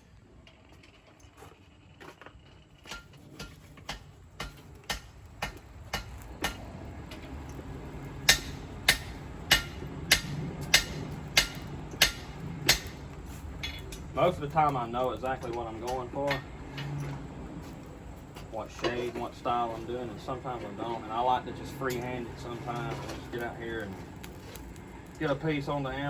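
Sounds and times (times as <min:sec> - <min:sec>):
hammer striking blade on anvil: 0:08.3 - 0:13.0.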